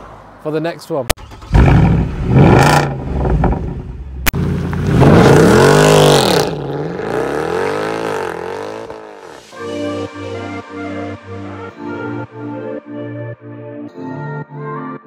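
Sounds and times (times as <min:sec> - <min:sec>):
car engine revving hard: 0:01.4 - 0:03.6, 0:04.6 - 0:09.4
music: 0:09.5 - 0:15.0.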